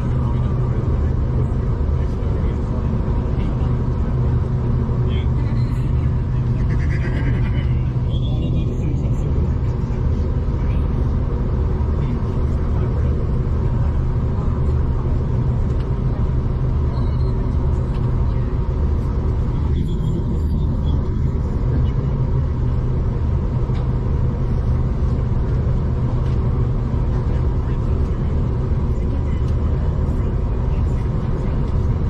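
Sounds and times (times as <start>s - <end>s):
train rumble from inside carriage: 0.0s - 32.0s.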